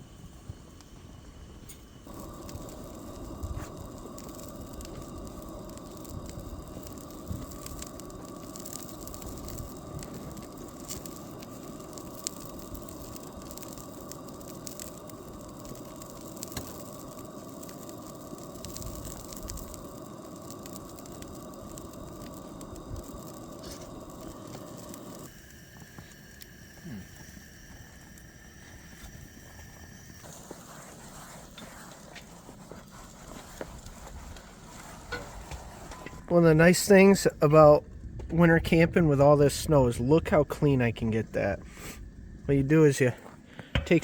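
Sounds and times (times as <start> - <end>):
constant hiss: 0.0 - 44.0
fire crackling: 0.0 - 44.0
sharp pops: 1.7 - 36.2, 43.5 - 44.0.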